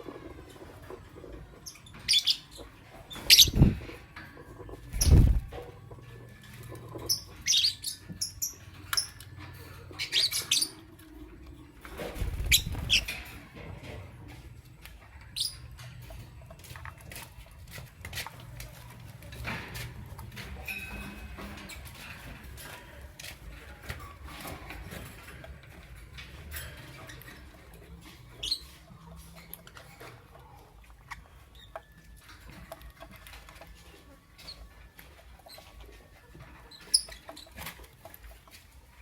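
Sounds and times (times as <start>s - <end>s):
lovebirds chirping: 1.6s - 3.9s, 4.9s - 5.5s, 12.2s - 13.2s.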